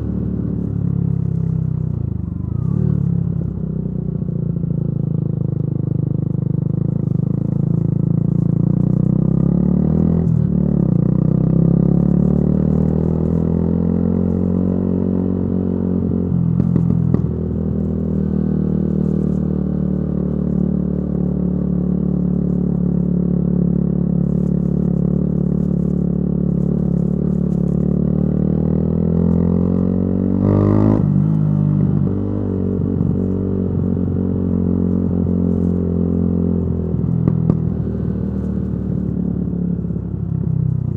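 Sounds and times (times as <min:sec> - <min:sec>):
motorcycle engine revving: 0:00.0 - 0:05.6, 0:06.7 - 0:40.9.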